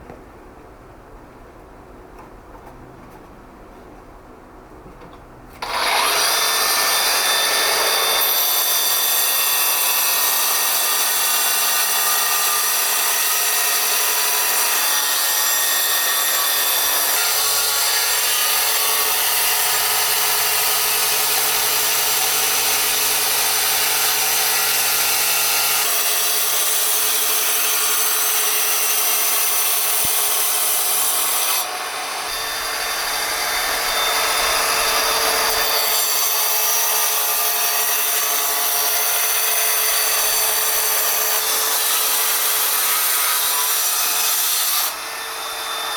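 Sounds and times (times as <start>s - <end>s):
power tool grinding stone: 5.6s - 45.0s.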